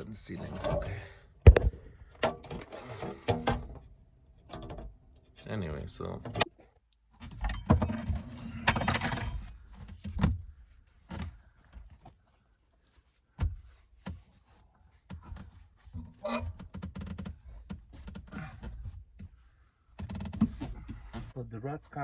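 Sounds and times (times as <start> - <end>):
knocks and thuds from handling things: 1.5 - 3.8, 7.2 - 12.0, 13.3 - 14.3.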